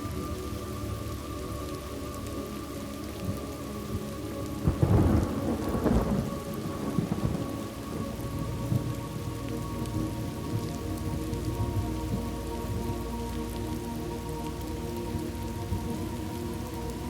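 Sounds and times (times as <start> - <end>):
steady rain: 0.0 - 17.0
thunder rumble: 4.6 - 13.0.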